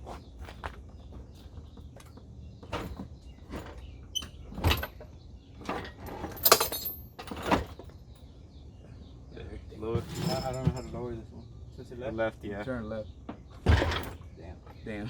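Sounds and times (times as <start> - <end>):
metal clanking and scraping: 2.7 - 7.8, 9.8 - 11.2.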